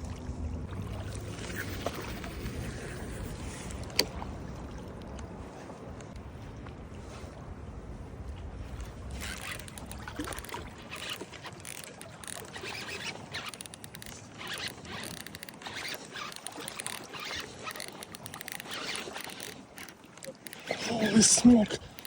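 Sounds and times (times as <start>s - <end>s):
fishing reel ticking: 9.1s - 22.0s.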